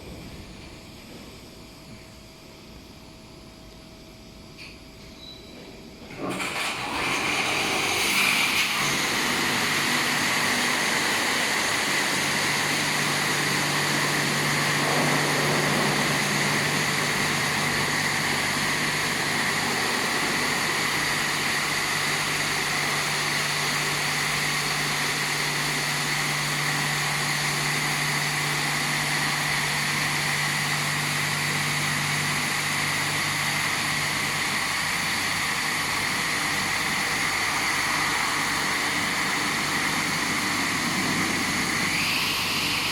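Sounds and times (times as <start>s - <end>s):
steady low hum: 0.0s - 6.2s
car wash machine rushing: 6.1s - 42.9s.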